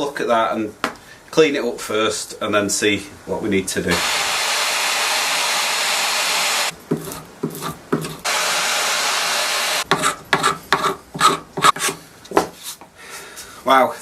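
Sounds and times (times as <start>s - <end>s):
power tool hissing: 3.9s - 6.7s, 8.2s - 9.9s.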